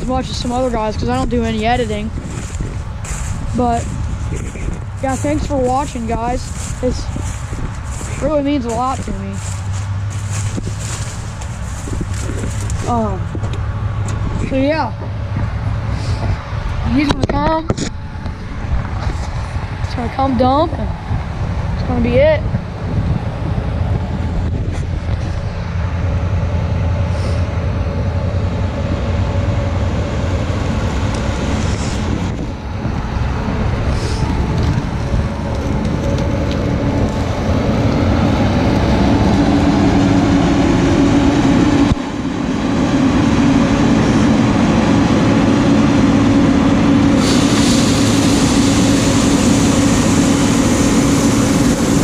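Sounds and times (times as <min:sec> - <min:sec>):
harvester and truck engines: 0:00.0 - 0:52.0
high hiss: 0:47.2 - 0:52.0.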